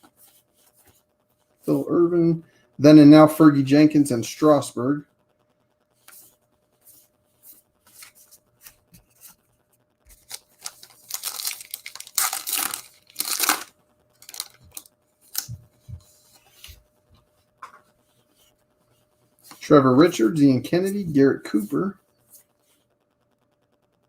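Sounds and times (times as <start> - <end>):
wrapper tearing and crinkling: 10.1 - 15.5.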